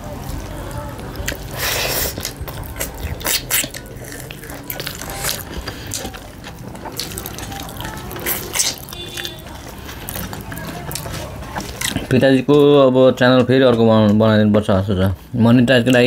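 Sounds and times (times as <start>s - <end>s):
wet chewing and lip-smacking: 1.0s - 12.2s.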